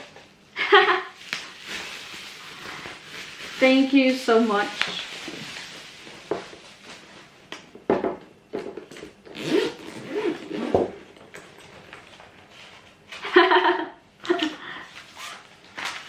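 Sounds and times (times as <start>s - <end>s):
zipper being pulled open: 9.3s - 11.0s, 15.1s - 15.5s.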